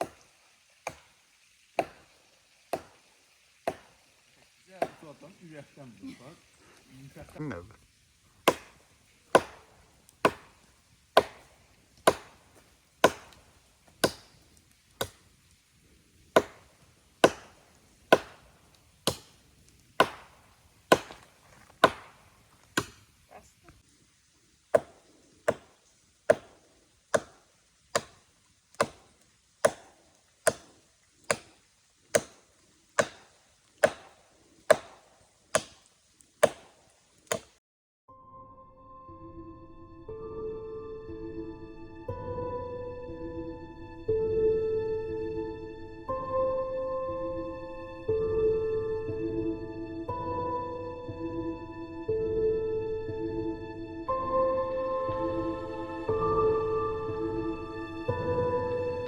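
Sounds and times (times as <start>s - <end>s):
chopping strikes: 0.0s - 0.2s, 0.8s - 1.2s, 1.8s - 3.0s, 3.6s - 4.0s, 4.7s - 5.3s, 8.4s - 14.4s, 16.4s - 19.4s, 20.0s - 23.1s, 24.7s - 28.2s, 28.8s - 32.4s, 33.0s - 37.5s.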